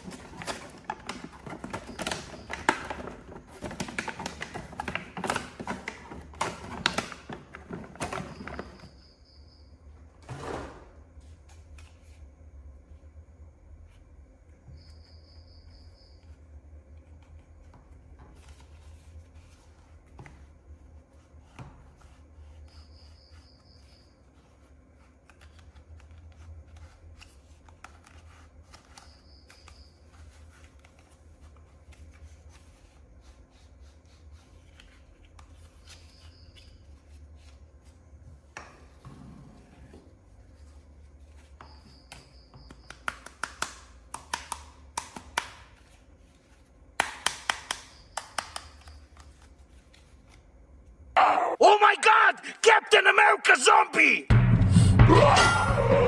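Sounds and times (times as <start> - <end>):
packaging rubbing and clicks: 0.0 - 8.8.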